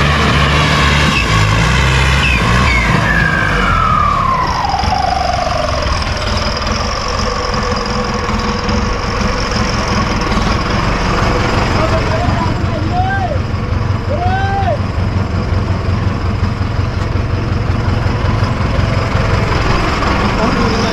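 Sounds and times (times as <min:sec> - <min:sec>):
heavy vehicle engine running: 0:00.0 - 0:20.9
whistle-like tone gliding down: 0:02.2 - 0:07.5.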